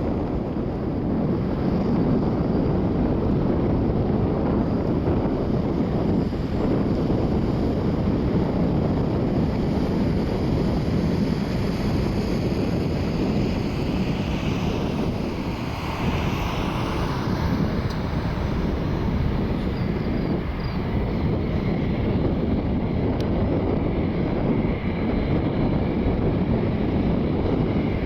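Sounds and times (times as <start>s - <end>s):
jet engines rumbling: 0.0s - 28.0s
wind buffeting microphone: 0.0s - 28.0s
faint high whine: 0.7s - 22.7s.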